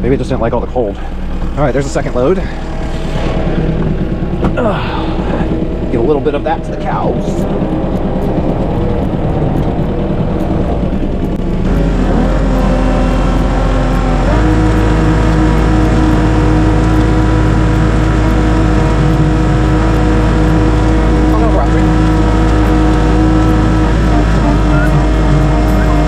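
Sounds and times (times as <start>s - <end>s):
tractor engine running under load: 0.0s - 26.0s.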